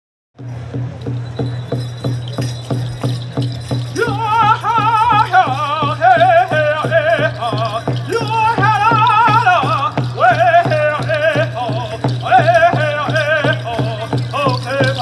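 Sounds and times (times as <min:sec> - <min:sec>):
drum beating steady pulse: 0:00.4 - 0:15.0
person singing: 0:03.9 - 0:15.0.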